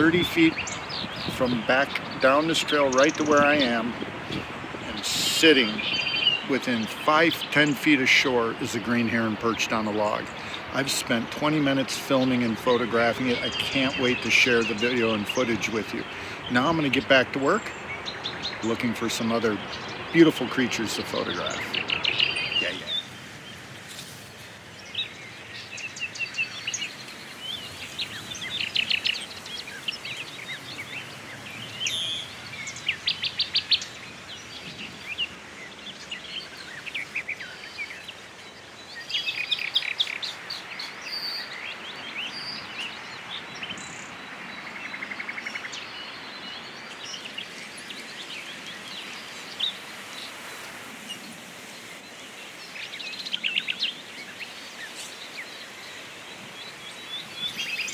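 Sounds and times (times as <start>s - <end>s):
outdoor background hiss: 0.0s - 57.9s
songbirds chirping and trilling: 0.0s - 57.9s.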